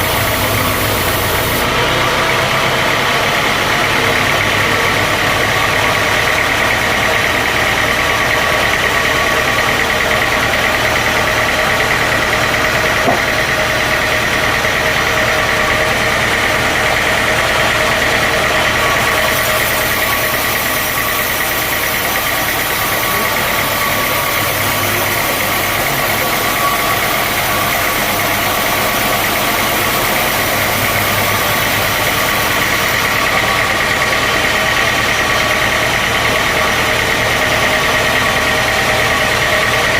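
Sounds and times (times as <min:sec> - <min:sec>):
high hiss: 0:00.0 - 0:01.6
sawmill machinery drone: 0:00.0 - 0:39.9.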